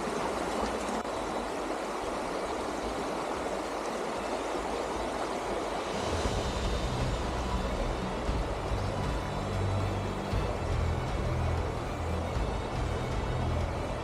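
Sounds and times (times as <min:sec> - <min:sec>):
creek water rushing: 0:00.0 - 0:14.0
low deep music: 0:05.8 - 0:14.0.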